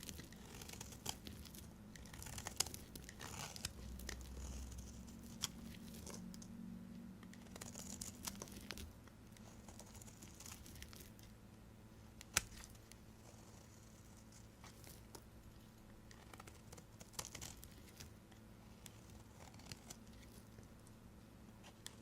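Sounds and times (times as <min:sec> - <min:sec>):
knife cutting dry soap: 0:00.0 - 0:06.2.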